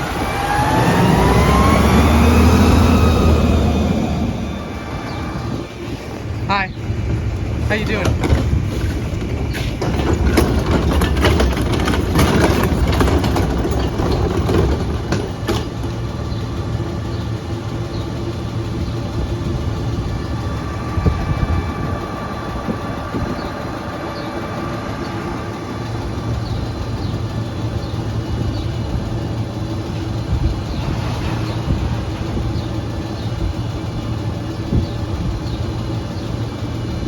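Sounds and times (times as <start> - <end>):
garbage truck engine running: 0.0 - 37.0
clanks and knocks: 7.0 - 16.4
faint even whine: 16.1 - 28.0.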